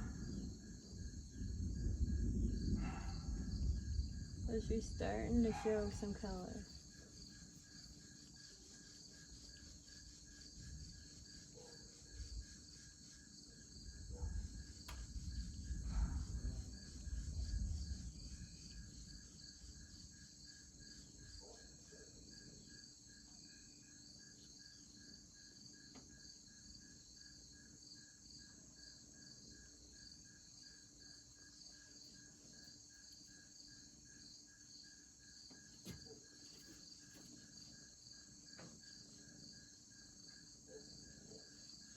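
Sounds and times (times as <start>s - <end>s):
distant thunder rumble: 0.0s - 7.0s, 13.8s - 20.2s
insects chirping in trills: 0.0s - 41.9s.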